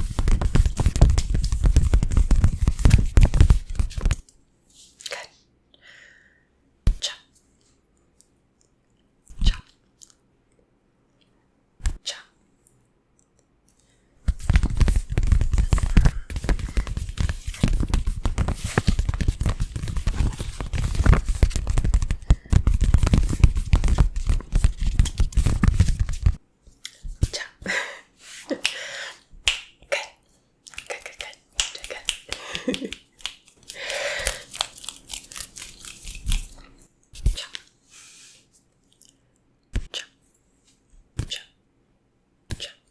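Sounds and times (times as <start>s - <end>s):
rubbing and scratching on microphone: 0.0s - 4.2s, 14.3s - 26.4s.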